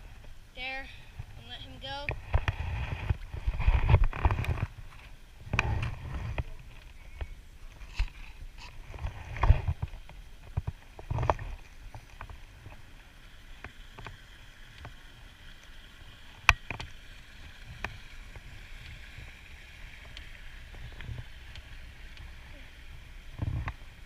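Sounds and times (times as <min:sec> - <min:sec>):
faint water wash: 0:00.0 - 0:24.0.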